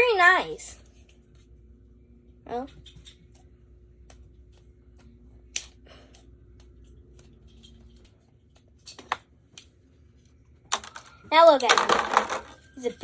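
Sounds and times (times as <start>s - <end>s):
plastic toy and packaging handled: 10.7s - 13.0s.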